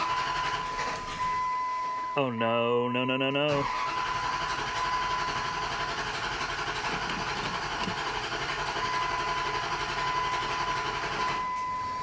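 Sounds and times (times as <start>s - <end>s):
pickup engine running: 3.6s - 12.0s.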